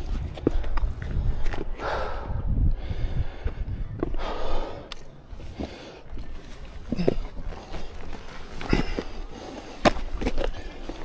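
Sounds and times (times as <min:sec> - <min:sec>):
footsteps scuffing on rock: 0:04.9 - 0:11.0.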